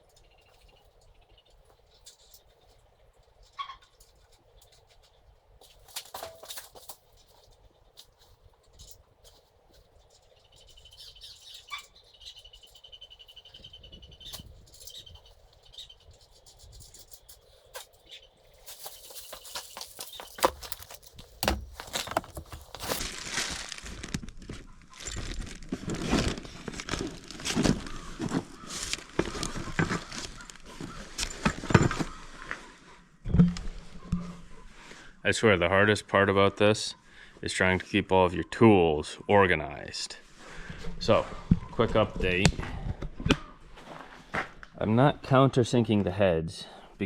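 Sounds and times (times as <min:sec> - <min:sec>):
tools clattering and rattling: 0:05.6 - 0:09.5, 0:16.8 - 0:23.0
faint high trill-like chirping: 0:10.0 - 0:20.4.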